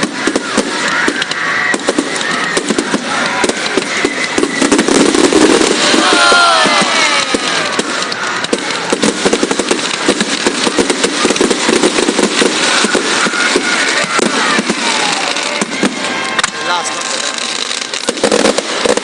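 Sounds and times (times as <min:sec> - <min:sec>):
faint firework whistles: 0:00.0 - 0:16.6
fireworks crackling: 0:00.0 - 0:19.0.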